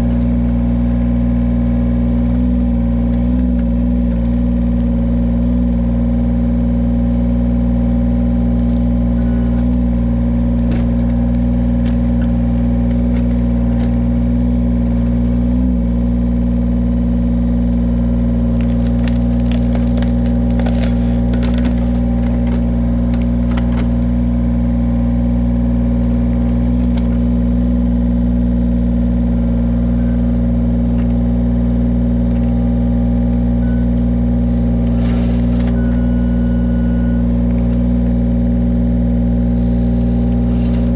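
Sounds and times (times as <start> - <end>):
machine engine running: 0.0 - 40.9
wood cracking and crunching: 7.7 - 15.7, 17.6 - 40.9.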